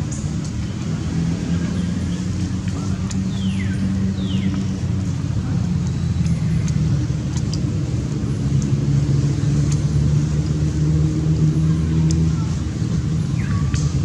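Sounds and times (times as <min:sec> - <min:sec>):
engine humming: 0:00.0 - 0:14.0
faint clicks: 0:05.8 - 0:07.8.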